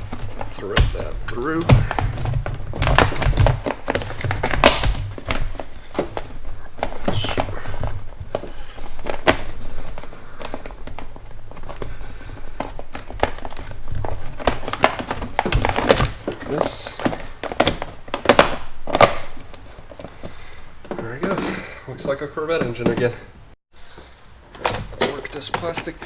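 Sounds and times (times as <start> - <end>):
plastic parts knocking and clicking: 0.0 - 11.9, 12.5 - 19.5.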